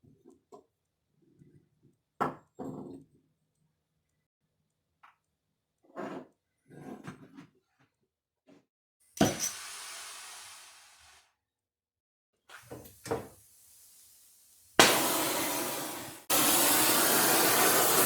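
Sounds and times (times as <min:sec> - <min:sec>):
hiss: 0:09.4 - 0:11.3, 0:12.9 - 0:18.0.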